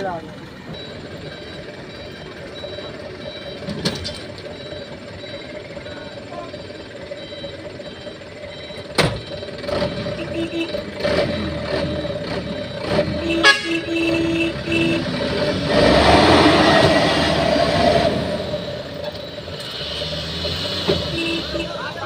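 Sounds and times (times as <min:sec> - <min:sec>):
truck horn blasts: 0:09.8 - 0:11.3, 0:12.8 - 0:15.3, 0:21.0 - 0:22.0.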